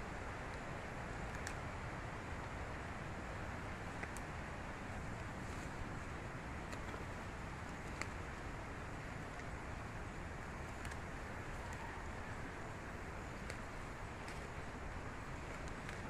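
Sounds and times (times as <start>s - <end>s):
faint sharp clicks: 1.2s - 1.6s, 4.0s - 4.3s, 10.7s - 11.9s, 15.5s - 16.0s.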